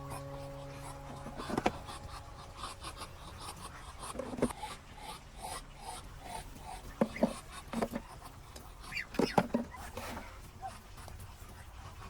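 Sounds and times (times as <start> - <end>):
held musical chord: 0.0 - 4.3.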